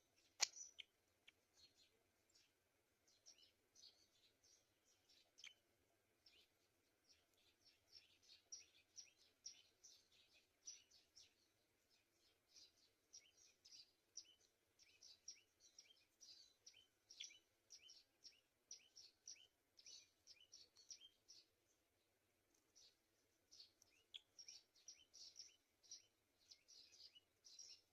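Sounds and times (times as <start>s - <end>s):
high bird chirps: 12.5s - 21.5s.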